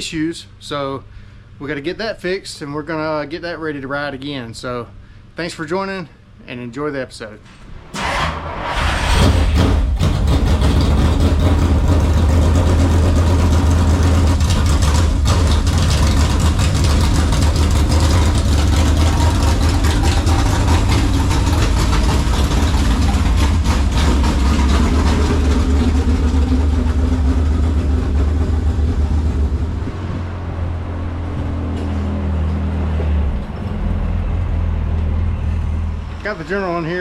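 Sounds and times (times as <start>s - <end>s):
vehicle engine idling: 9.6s - 37.0s.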